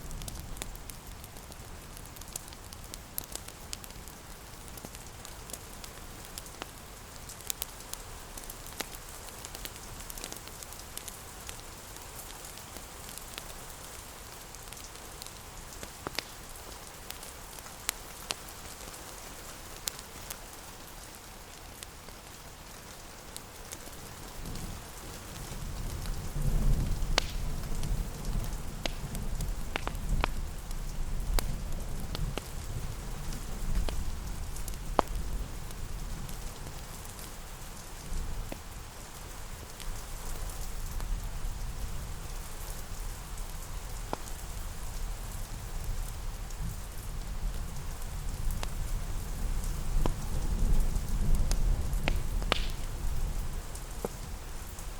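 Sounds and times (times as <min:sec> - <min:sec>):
sharp crackles and pops: 0:00.0 - 0:54.9
steady rain: 0:00.0 - 0:54.9.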